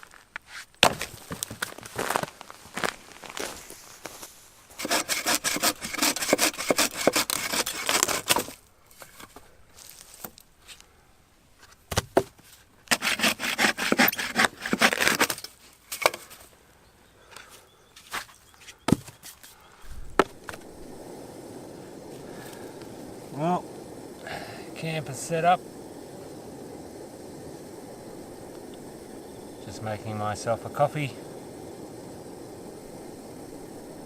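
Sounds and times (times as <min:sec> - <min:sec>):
rough scraping and rubbing: 0:04.8 - 0:09.3, 0:12.9 - 0:15.5.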